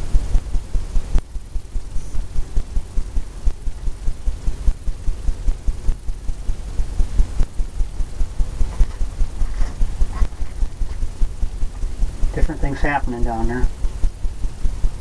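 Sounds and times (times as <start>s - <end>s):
brush dabbing on canvas: 8.6s - 11.2s.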